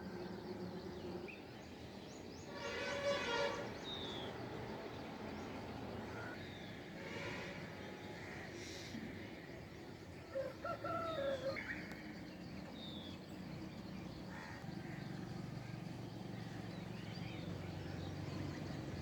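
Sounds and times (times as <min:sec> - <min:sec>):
rooster crowing: 0:10.4 - 0:11.6.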